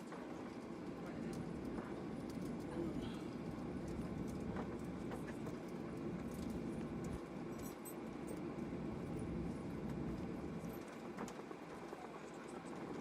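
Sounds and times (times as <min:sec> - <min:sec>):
airplane cabin low rumble: 0:00.0 - 0:13.0.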